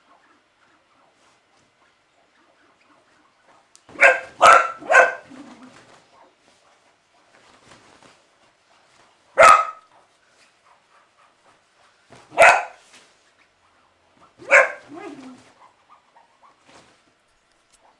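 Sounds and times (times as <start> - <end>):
faint rustling: 0.3 - 17.9
dog barking sharply: 3.9 - 5.3, 9.4 - 9.8, 12.3 - 12.8, 14.4 - 15.2.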